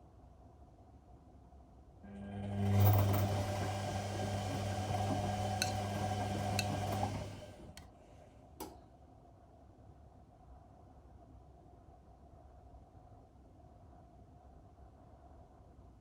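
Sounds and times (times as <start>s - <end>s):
washing machine drum turning: 2.4s - 7.8s.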